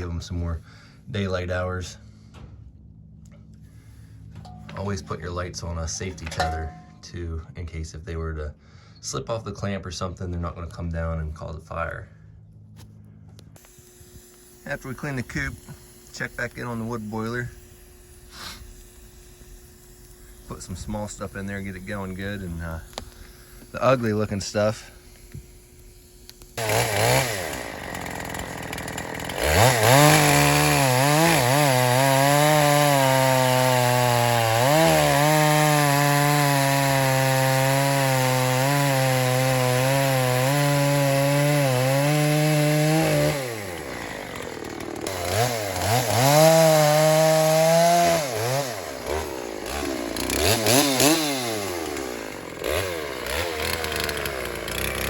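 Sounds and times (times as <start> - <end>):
chainsaw revving: 13.6 - 55.0.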